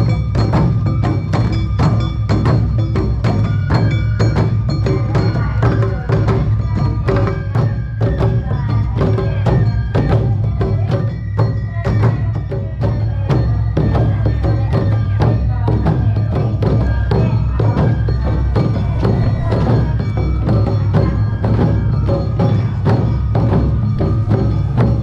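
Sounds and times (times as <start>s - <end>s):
bamboo flute: 0.0s - 25.0s
shamisen: 0.0s - 25.0s
taiko drums: 0.0s - 25.0s.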